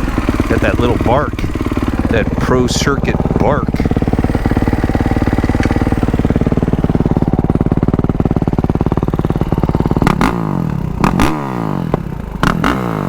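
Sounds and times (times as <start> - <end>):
sharp engine knocks: 0.0 - 8.4
motorcycle engine revving: 0.0 - 13.0.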